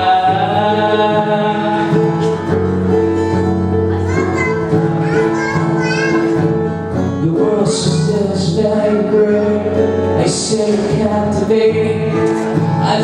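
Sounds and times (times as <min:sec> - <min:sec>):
person singing: 0:00.0 - 0:02.6, 0:07.1 - 0:13.0
guitar playing chords: 0:00.0 - 0:13.0.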